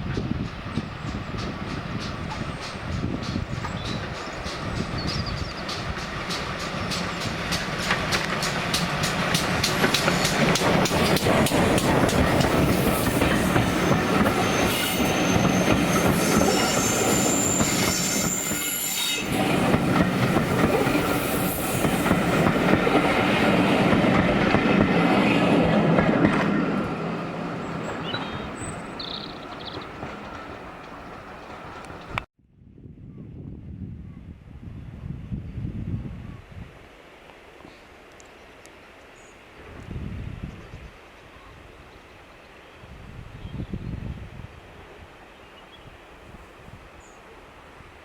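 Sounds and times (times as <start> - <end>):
train wheels clattering on rails: 0.0 - 32.3
faint high wheel squeal: 13.7 - 19.4.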